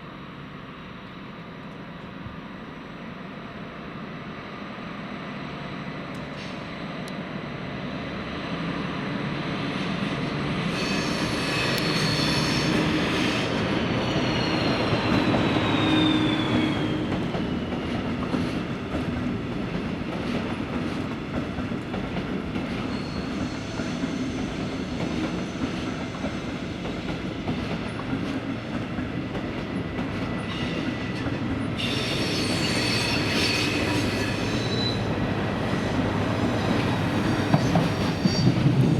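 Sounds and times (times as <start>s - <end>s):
train wheels squealing: 9.7s - 18.0s, 22.7s - 27.0s, 30.3s - 35.2s, 35.8s - 38.9s.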